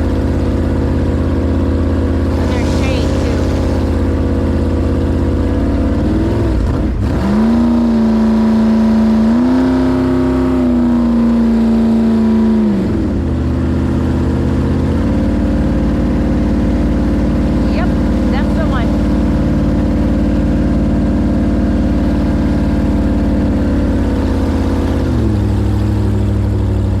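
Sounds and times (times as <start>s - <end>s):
jet boat engine revving: 0.0s - 27.0s.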